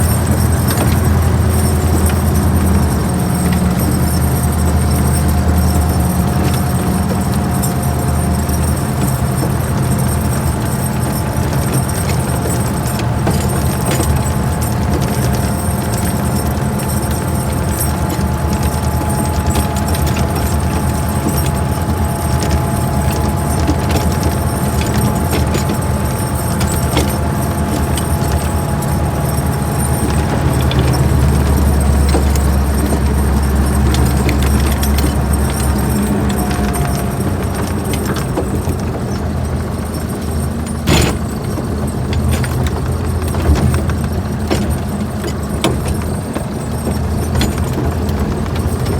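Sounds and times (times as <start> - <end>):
low mechanical hum: 0.0 - 48.9.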